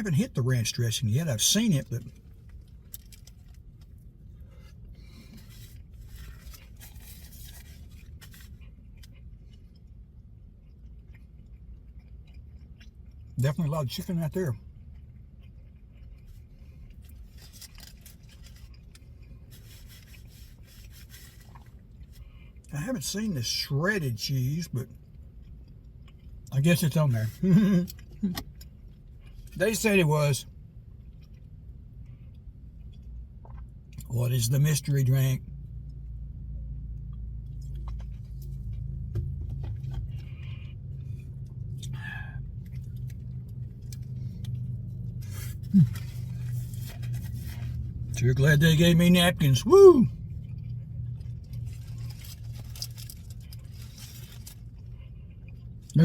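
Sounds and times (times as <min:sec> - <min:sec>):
low steady hum: 0:00.0 - 0:56.0
sandwich wrapper rustling: 0:01.8 - 0:09.6, 0:16.0 - 0:22.2, 0:42.6 - 0:48.2, 0:50.6 - 0:55.6
person chewing food: 0:02.0 - 0:13.4, 0:14.6 - 0:22.7, 0:25.0 - 0:26.6, 0:30.8 - 0:34.1, 0:36.8 - 0:48.1, 0:50.2 - 0:56.0
faint crackles and clicks: 0:50.3 - 0:55.9.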